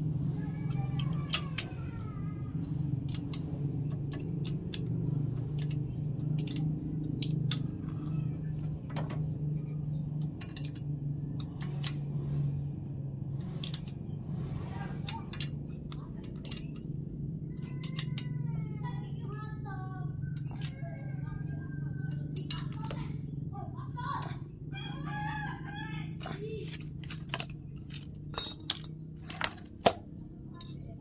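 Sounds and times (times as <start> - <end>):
steady low hum: 0.0 - 31.0
metal tools clinking on metal: 10.2 - 10.9, 26.7 - 29.6, 30.4 - 31.0.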